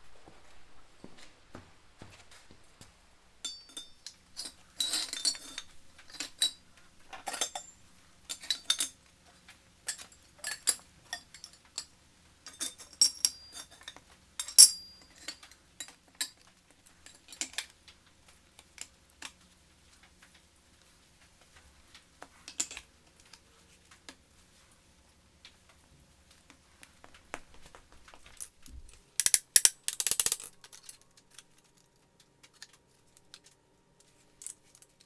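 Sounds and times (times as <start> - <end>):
metallic clinks of small parts: 12.5 - 15.5, 28.3 - 31.9, 34.1 - 35.0.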